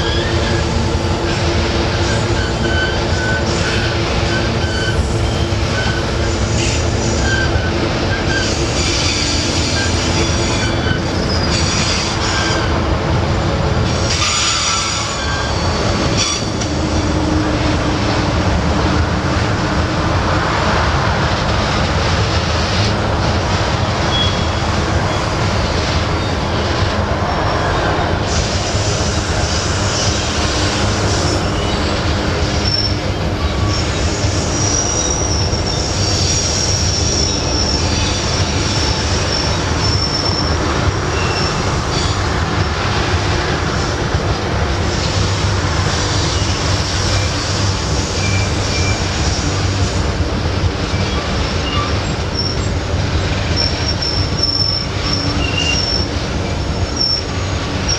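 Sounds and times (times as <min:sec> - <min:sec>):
train wheels rumbling on rails: 0:00.0 - 0:57.9
wheel flange squeal: 0:01.9 - 0:12.8, 0:14.1 - 0:16.8, 0:24.1 - 0:25.3, 0:28.3 - 0:42.2, 0:46.2 - 0:49.9, 0:50.9 - 0:57.9.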